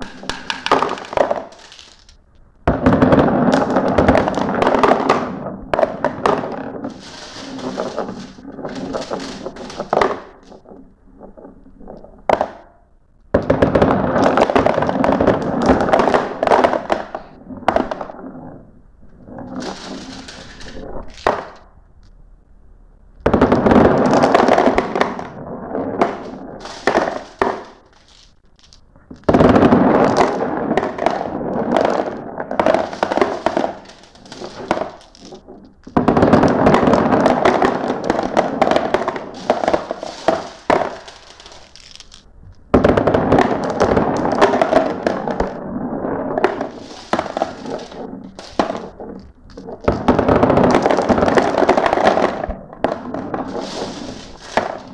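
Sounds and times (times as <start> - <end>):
glass marbles rattling down a track: 0.0 - 2.2, 6.0 - 10.7, 19.5 - 21.6, 26.0 - 31.2, 31.8 - 45.6, 46.4 - 54.9.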